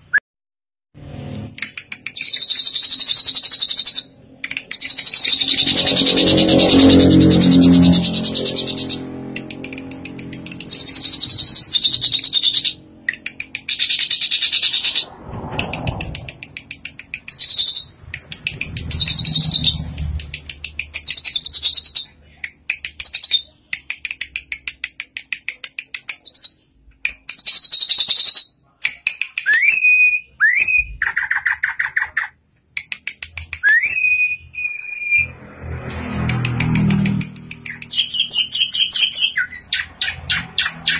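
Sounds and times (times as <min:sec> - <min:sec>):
bird clicking and chattering song: 0:01.6 - 0:35.3, 0:35.9 - 0:40.9
upward-sweeping bird whistles: 0:02.2 - 0:04.1, 0:18.9 - 0:19.8, 0:29.5 - 0:31.9, 0:33.6 - 0:35.3, 0:37.9 - 0:40.9.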